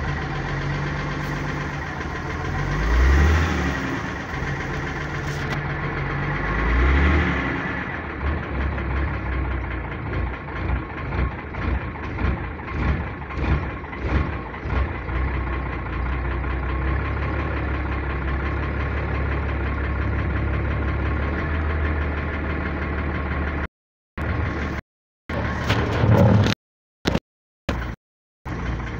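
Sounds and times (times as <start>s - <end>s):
knocking diesel truck engine: 0.0s - 25.7s, 27.1s - 28.9s.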